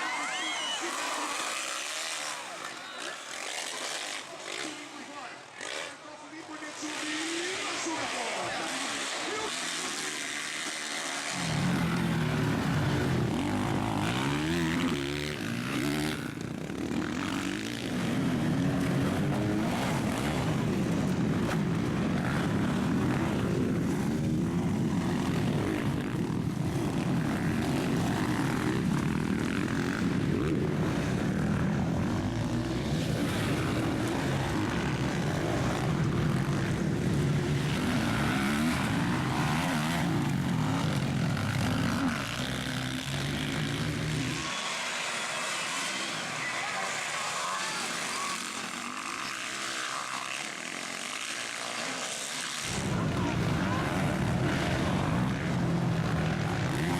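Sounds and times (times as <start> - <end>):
motocross bike engines revving: 0.0 - 56.9.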